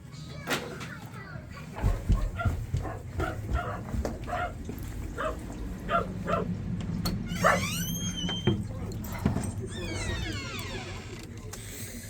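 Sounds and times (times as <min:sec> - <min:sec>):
dog yipping: 0:05.2 - 0:06.5, 0:07.3 - 0:08.2
dog squealing: 0:07.3 - 0:08.2.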